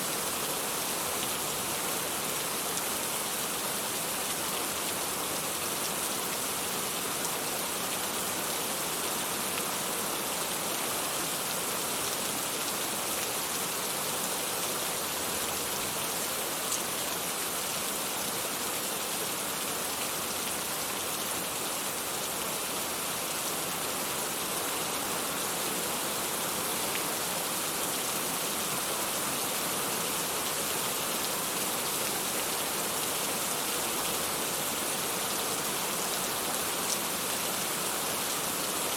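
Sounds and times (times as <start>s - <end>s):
dense rain falling: 0.0s - 38.9s.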